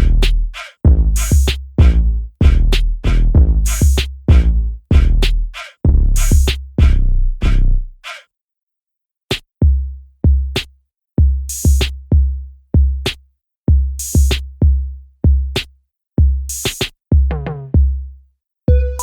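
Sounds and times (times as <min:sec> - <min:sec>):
electronic music with drum-machine beat: 0:00.0 - 0:05.3, 0:05.9 - 0:07.0, 0:18.7 - 0:19.0.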